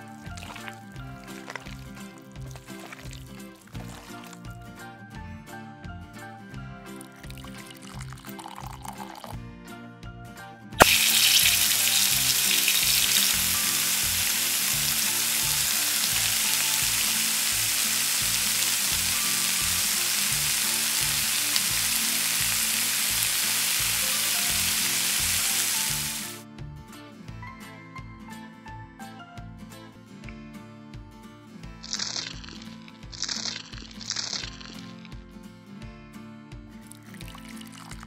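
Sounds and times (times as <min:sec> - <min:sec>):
background music: 0:00.0 - 0:38.0
meat sizzling in hot oil: 0:00.2 - 0:04.5, 0:10.8 - 0:26.4, 0:31.8 - 0:35.0.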